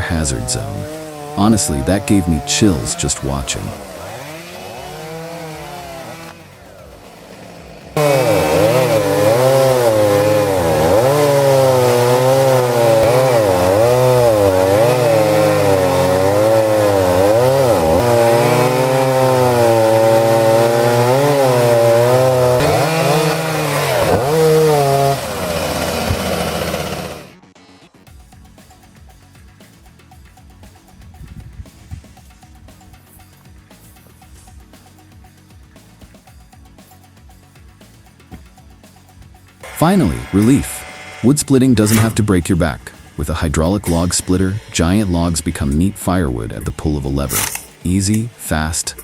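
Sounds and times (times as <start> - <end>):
chainsaw cutting wood: 0.0 - 27.5, 37.8 - 49.0.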